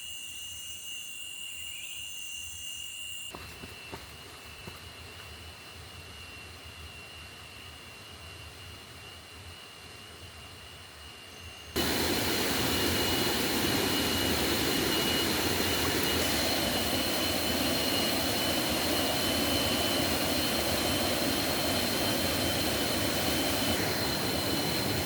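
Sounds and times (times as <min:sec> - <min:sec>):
rushing forest stream: 0:11.8 - 0:25.0.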